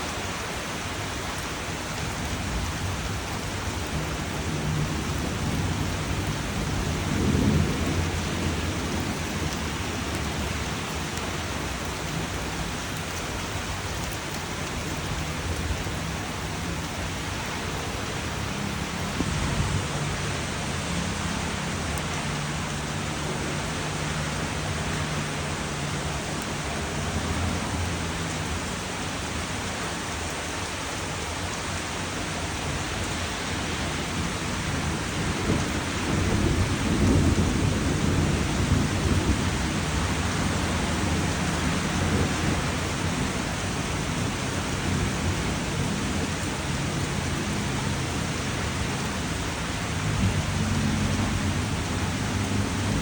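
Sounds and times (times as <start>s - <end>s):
steady rain: 0.0s - 53.0s
thunder rumbling: 2.1s - 23.8s, 33.7s - 53.0s.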